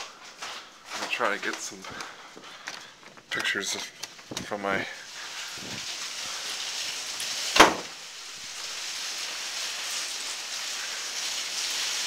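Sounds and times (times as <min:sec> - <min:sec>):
heavy rain and hail: 0:03.3 - 0:12.0
sharp loud impact: 0:07.6 - 0:07.9.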